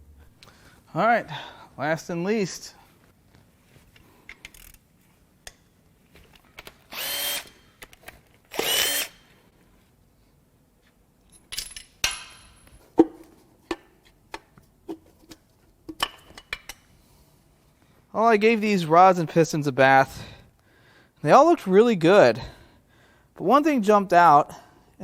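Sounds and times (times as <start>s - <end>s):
power tool bursts: 6.9s - 7.6s, 8.5s - 9.3s
metal parts clinking: 11.2s - 12.8s.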